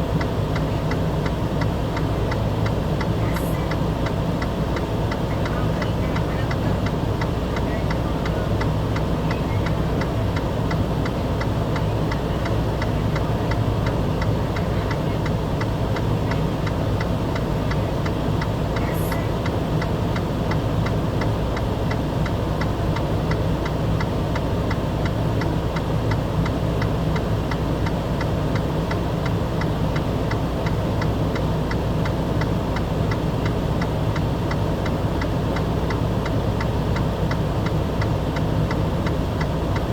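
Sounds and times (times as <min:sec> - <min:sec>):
engine idling hum: 0:00.0 - 0:39.9.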